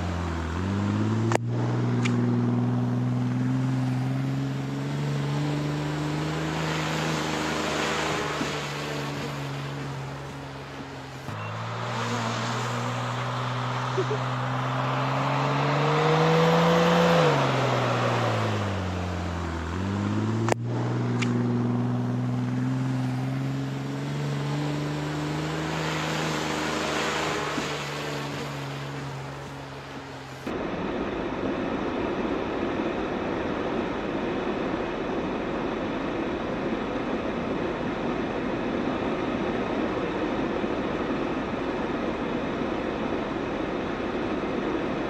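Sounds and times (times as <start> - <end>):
vehicle engine revving: 0.0 - 30.6.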